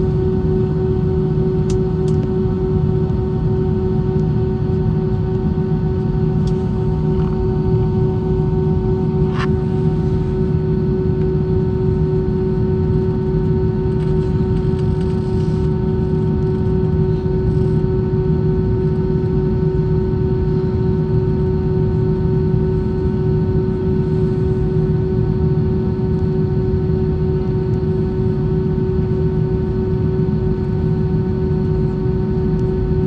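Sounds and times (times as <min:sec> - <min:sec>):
airplane cabin engine drone: 0:00.0 - 0:33.0.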